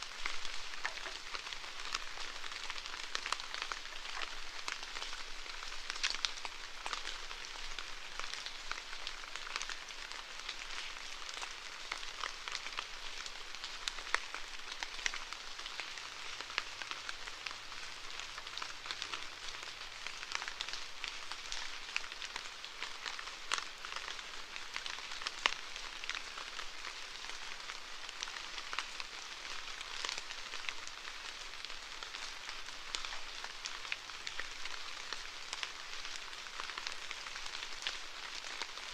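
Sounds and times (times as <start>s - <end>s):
raindrops hitting a surface: 0.0s - 38.9s
steady rainfall: 0.0s - 38.9s.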